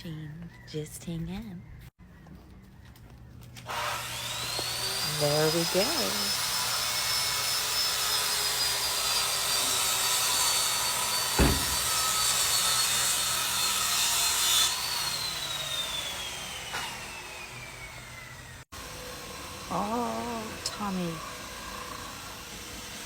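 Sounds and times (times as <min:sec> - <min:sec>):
washing machine whirring and whining: 0:04.0 - 0:12.6, 0:15.4 - 0:23.0
single knock: 0:11.4 - 0:12.0.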